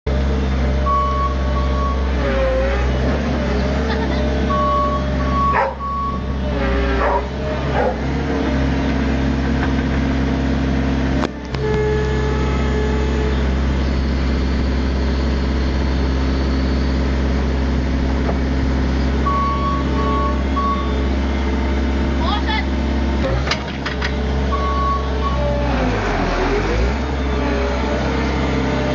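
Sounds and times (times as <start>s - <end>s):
skid steer engine running: 0.1s - 28.9s
backup alarm beeping: 0.9s - 2.1s, 4.5s - 6.4s.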